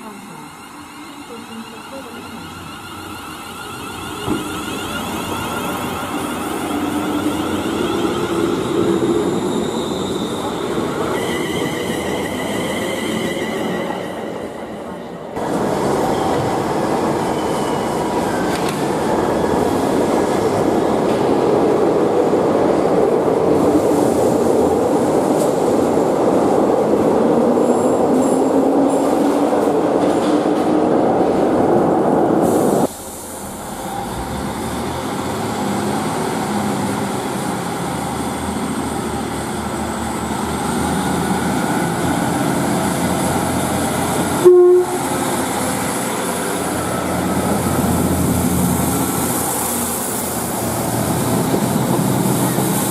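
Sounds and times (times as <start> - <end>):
diesel trains pulling away: 0.0 - 21.5, 32.3 - 52.9
train horn blast: 44.4 - 45.2.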